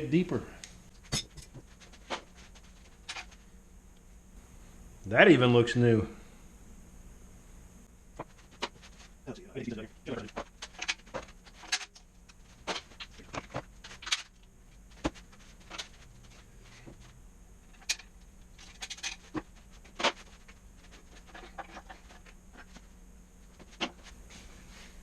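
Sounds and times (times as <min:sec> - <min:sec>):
metal transmission parts clinking: 0:17.7 - 0:19.4.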